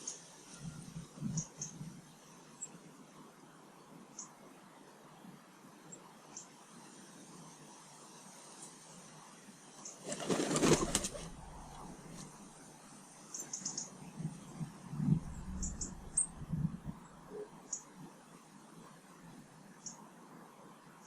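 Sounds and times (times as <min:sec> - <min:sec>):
small birds chirping: 0:00.0 - 0:02.8, 0:03.9 - 0:04.4, 0:05.9 - 0:06.6, 0:13.2 - 0:18.1, 0:19.7 - 0:20.1
bird wings flapping: 0:09.9 - 0:12.4
soft low thuds: 0:14.2 - 0:17.3.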